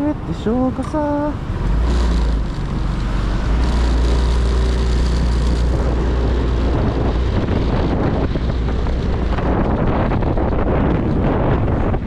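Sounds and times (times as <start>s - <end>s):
motorcycle engine hum: 0.0s - 12.0s
wind rushing over microphone: 0.0s - 12.0s.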